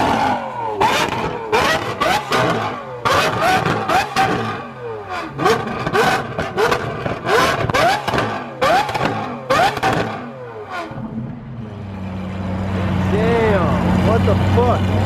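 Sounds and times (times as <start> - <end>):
car engine revving: 0.0 - 15.0
exhaust pops and crackles: 5.4 - 10.2.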